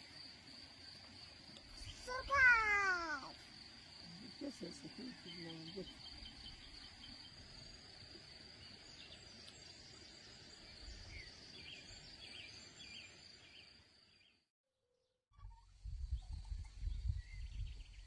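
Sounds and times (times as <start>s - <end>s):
bird chirping: 4.1s - 14.4s.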